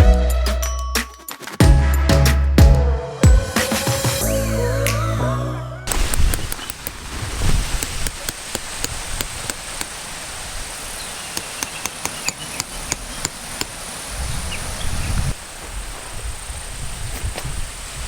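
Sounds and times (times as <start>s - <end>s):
steady high hiss: 5.9s - 18.0s.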